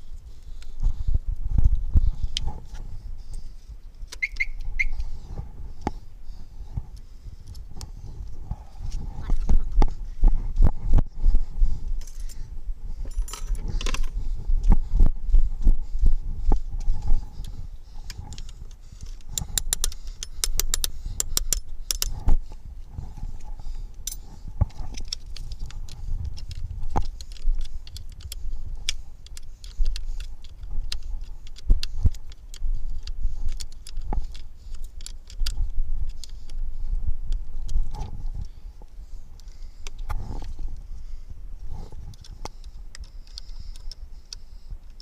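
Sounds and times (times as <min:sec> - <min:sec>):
metal parts and tools clinking: 0:13.0 - 0:14.2.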